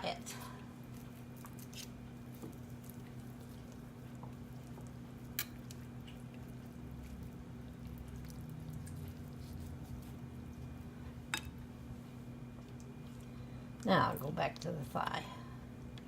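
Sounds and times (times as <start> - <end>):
low electrical hum: 0.0 - 16.0
wet squishing of raw chicken: 0.9 - 10.9.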